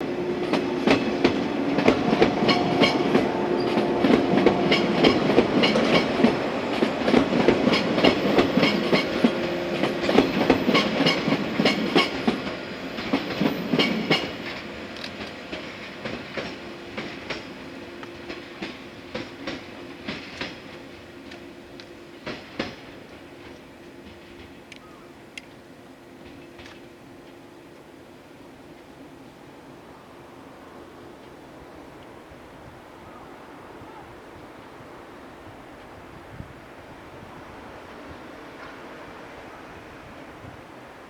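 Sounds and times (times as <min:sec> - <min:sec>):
train rumble and hum: 0:00.0 - 0:41.0
train wheels clickety-clack: 0:00.3 - 0:25.6, 0:26.2 - 0:27.9, 0:37.9 - 0:39.0.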